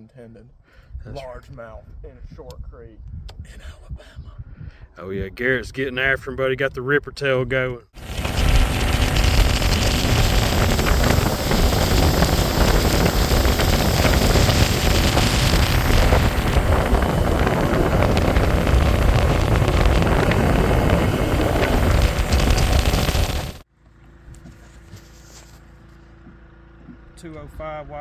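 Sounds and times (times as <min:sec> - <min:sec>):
wind buffeting microphone: 0:00.9 - 0:05.7, 0:08.0 - 0:23.6.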